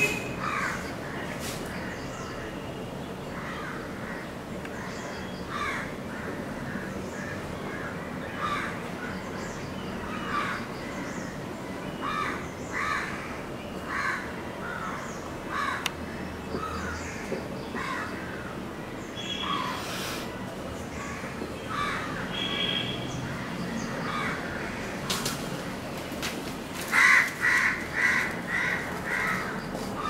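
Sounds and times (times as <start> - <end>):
forest background noise: 0.0 - 30.0
bird calling: 19.1 - 20.3.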